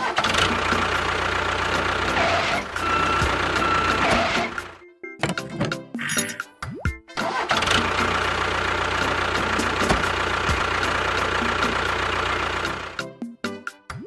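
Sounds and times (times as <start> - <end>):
car engine starting and idling: 0.0 - 5.7, 7.2 - 13.0.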